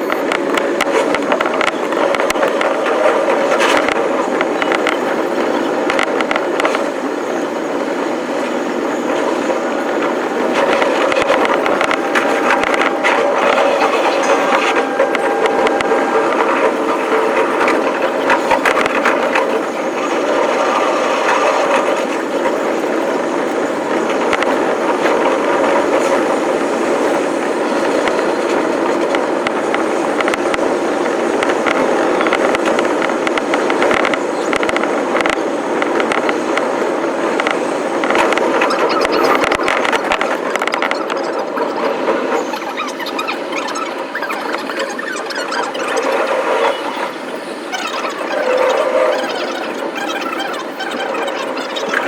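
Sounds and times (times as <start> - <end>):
electric train rumbling: 0.0 - 52.0
wheels clicking on rail joints: 0.0 - 52.0
train wheels squealing: 7.1 - 32.7.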